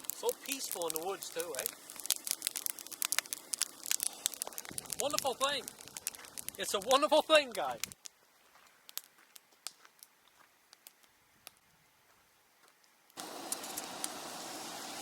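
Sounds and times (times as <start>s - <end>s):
steady hiss: 0.0s - 8.1s, 13.2s - 15.0s
campfire crackling with pops: 0.0s - 11.7s, 12.6s - 15.0s.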